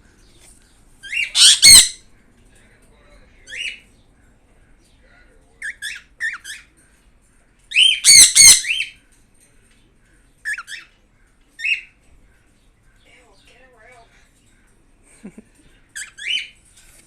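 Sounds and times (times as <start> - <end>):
pet birds squawking: 1.0 - 2.1, 3.4 - 3.9, 5.6 - 6.7, 7.7 - 9.0, 10.4 - 10.9, 11.6 - 14.3, 15.9 - 16.6.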